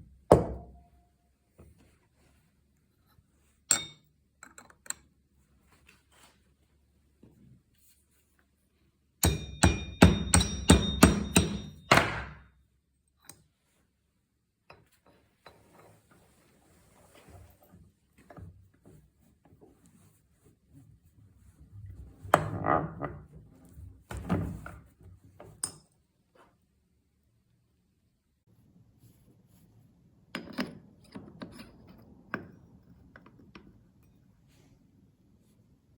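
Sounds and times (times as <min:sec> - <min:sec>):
metal tools clinking and knocking: 0:03.7 - 0:05.0
hammer striking a screwdriver: 0:09.2 - 0:12.5.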